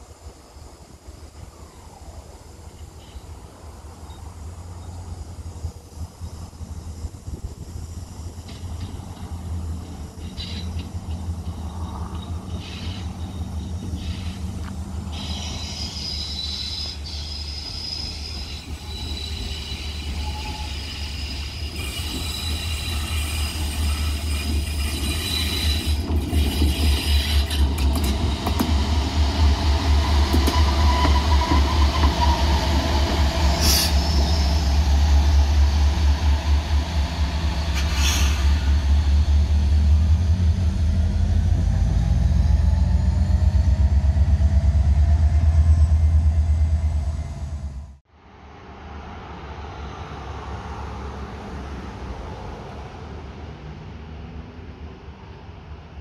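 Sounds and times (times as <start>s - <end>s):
locomotive drone: 0.0s - 56.0s
high wheel squeal: 9.9s - 28.5s, 29.9s - 39.0s.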